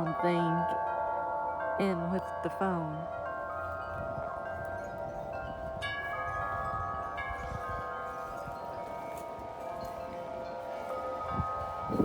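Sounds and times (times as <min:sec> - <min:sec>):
metal wind chimes ringing: 0:00.0 - 0:12.0
low wind rumble: 0:03.1 - 0:12.0.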